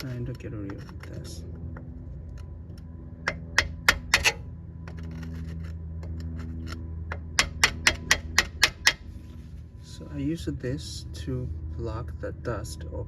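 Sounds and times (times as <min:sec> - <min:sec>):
hand tool tapping metal hub: 0:03.2 - 0:04.4, 0:07.1 - 0:09.0.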